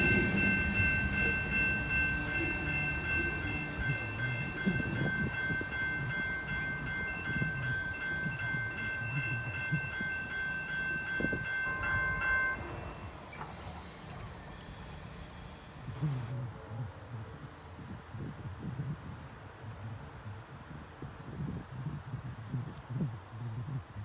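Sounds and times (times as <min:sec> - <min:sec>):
train cars rumbling past: 0:00.0 - 0:16.3
wheels squealing: 0:00.0 - 0:16.3.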